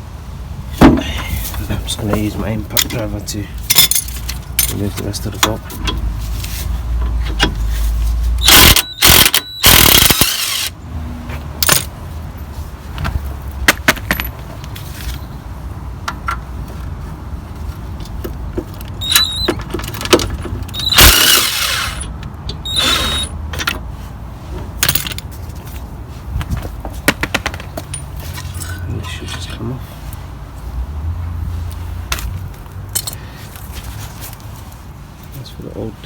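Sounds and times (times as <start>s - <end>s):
impact driver bursts: 8.4s - 10.8s, 20.7s - 23.4s
metallic clinks: 27.8s - 29.6s.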